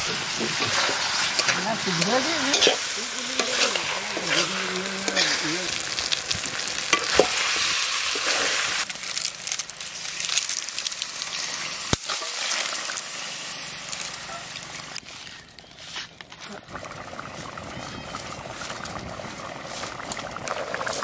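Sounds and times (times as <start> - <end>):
curry sizzling in a pan: 0.0 - 15.2.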